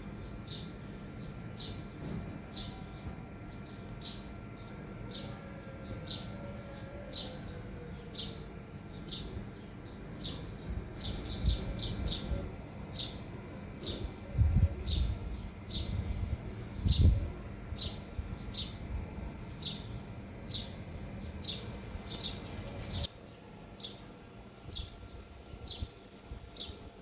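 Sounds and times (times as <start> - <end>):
small bird chirping: 16.6 - 25.9.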